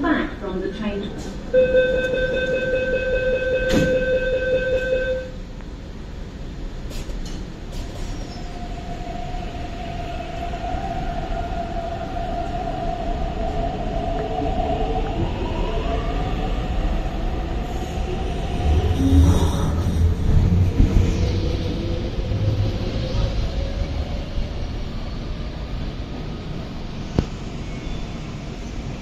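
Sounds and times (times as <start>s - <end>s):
door-closing warning tone: 1.6s - 5.4s
train cars rumbling: 16.4s - 29.0s.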